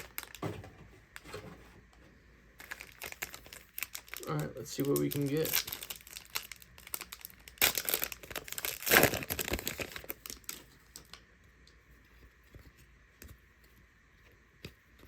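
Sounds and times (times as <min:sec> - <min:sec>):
plastic wrapper tearing and crinkling: 0:00.0 - 0:00.4, 0:02.6 - 0:11.2.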